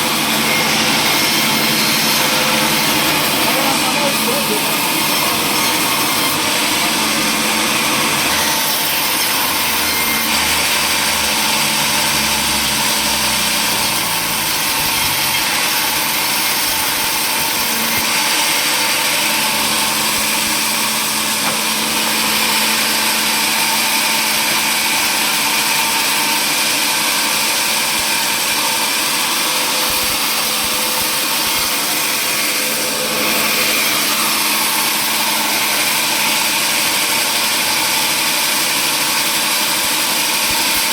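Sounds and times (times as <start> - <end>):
power saw running: 0.0 - 40.9.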